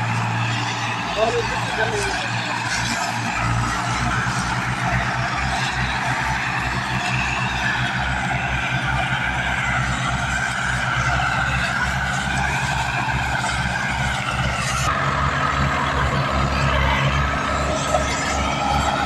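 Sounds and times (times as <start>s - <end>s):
tractor diesel engine running: 0.0s - 19.0s
wavering whine: 0.0s - 19.0s.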